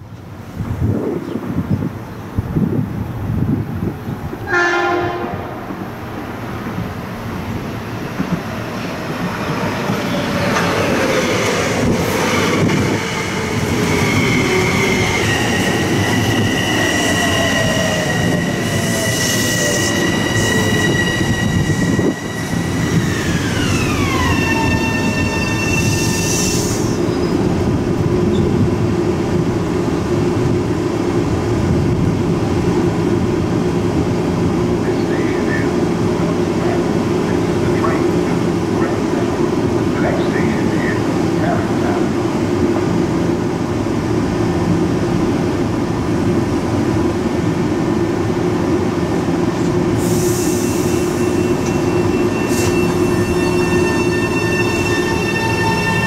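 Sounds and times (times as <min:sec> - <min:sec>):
steady train hum: 0:00.0 - 0:56.0
electric train whine: 0:03.8 - 0:56.0
brief air hisses: 0:50.0 - 0:51.1
electric braking tones: 0:50.8 - 0:56.0.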